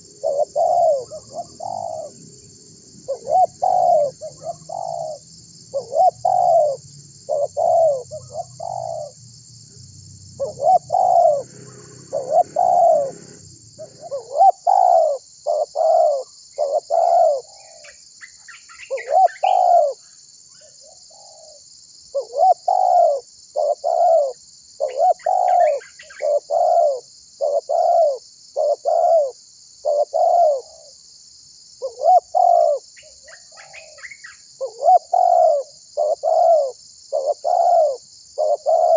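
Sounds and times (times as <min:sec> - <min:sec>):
dove cooing: 0:00.0 - 0:09.2, 0:10.3 - 0:17.9, 0:18.8 - 0:20.0, 0:20.6 - 0:30.9, 0:31.8 - 0:38.9
small birds chirping: 0:00.0 - 0:30.9, 0:31.8 - 0:38.9
steady high hiss: 0:10.7 - 0:18.8.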